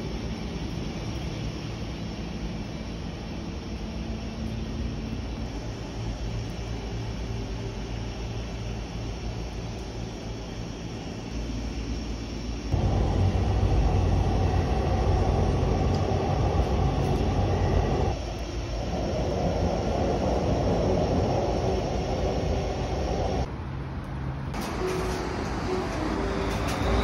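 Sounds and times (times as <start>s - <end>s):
train wheels rumbling on rail: 5.4s - 23.5s, 24.5s - 27.0s.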